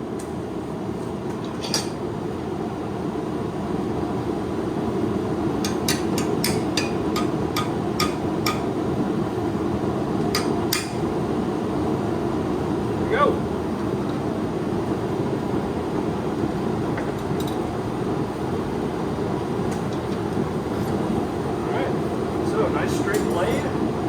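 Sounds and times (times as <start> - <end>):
hammer tapping blade on anvil: 5.6 - 8.7, 10.3 - 11.0.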